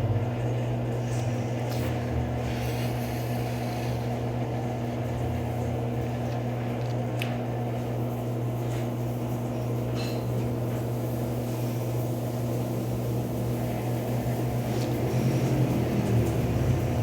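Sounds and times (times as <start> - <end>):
washing machine spinning: 0.0 - 17.0.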